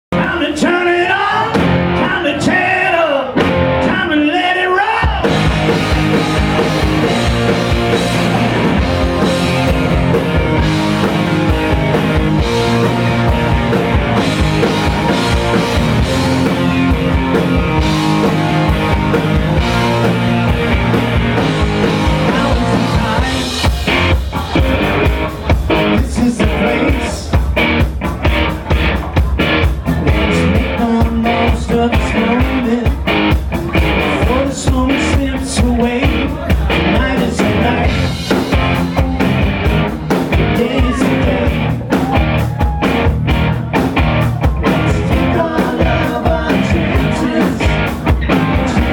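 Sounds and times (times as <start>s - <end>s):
rock band with electric guitar: 0.1s - 48.9s
person singing: 21.4s - 27.5s, 29.1s - 33.1s, 33.7s - 43.0s, 44.3s - 48.9s.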